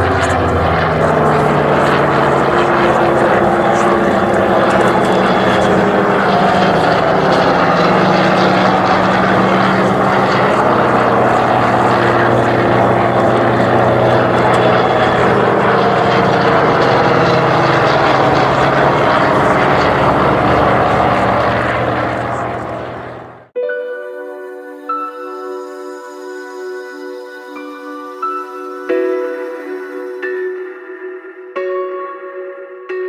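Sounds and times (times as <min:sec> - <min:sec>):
propeller aircraft engine drone: 0:00.0 - 0:23.6.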